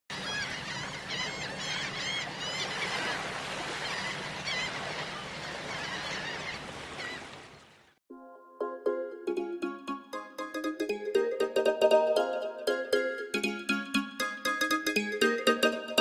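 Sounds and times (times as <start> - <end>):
birds calling: 0.1 - 8.0.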